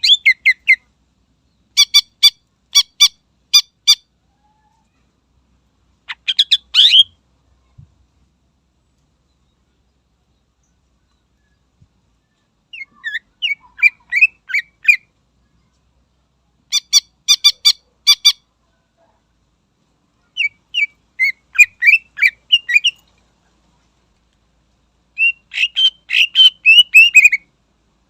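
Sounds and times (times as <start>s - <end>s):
bird singing whistled notes: 0.0s - 0.9s, 20.4s - 23.0s, 25.2s - 27.5s.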